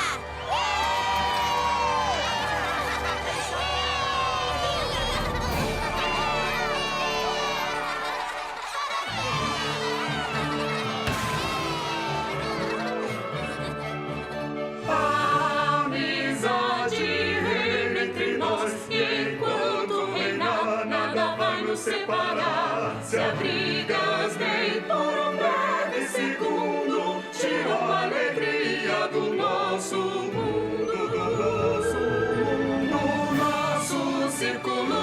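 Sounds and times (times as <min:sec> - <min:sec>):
choir singing: 0:00.0 - 0:35.0.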